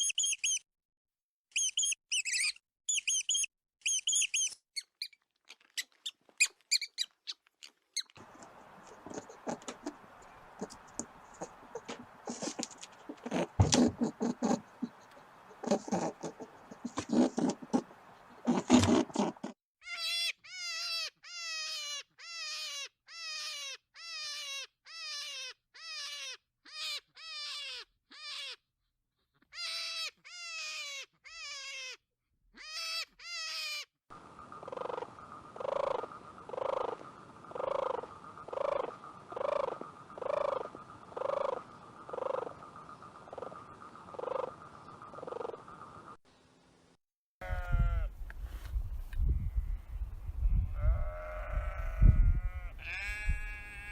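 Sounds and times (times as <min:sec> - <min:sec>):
pulsing animal call: 0:08.2 - 0:19.5, 0:34.2 - 0:46.0.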